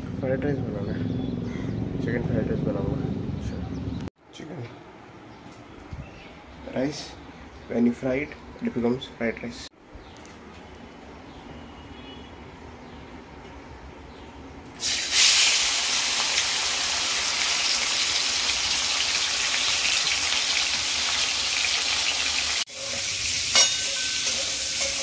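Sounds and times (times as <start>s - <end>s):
chicken sizzling in hot oil: 14.8s - 25.0s.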